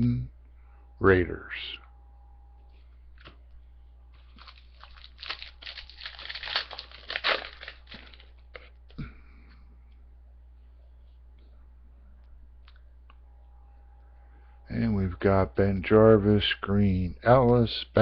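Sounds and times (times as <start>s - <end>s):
foil wrapper crinkling: 4.2s - 8.8s.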